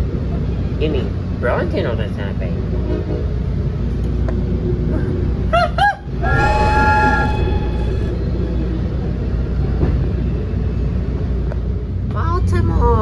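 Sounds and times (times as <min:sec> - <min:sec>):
train rumbling: 0:00.0 - 0:13.0
train horn chord: 0:06.2 - 0:08.6.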